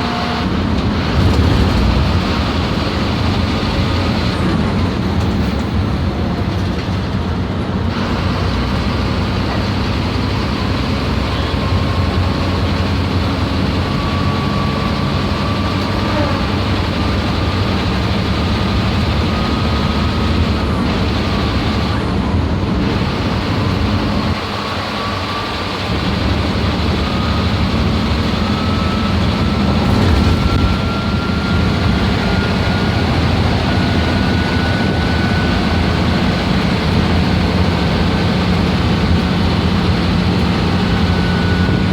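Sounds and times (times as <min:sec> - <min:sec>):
bus diesel engine under load: 0:00.0 - 0:41.9
turbocharger whistle: 0:10.0 - 0:17.6, 0:23.0 - 0:37.0.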